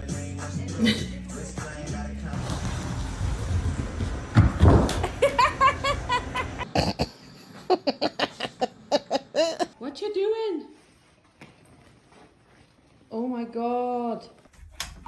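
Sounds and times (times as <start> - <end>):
background music: 0.0 - 3.2
person laughing: 0.8 - 1.2, 5.0 - 9.8.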